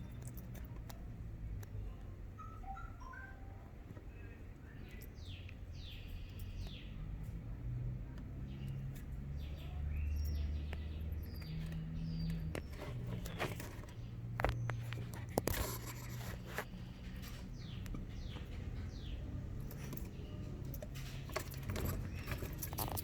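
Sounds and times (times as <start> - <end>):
hedgehog chewing crickets: 0.0 - 23.0
crunching clicks: 8.1 - 23.0.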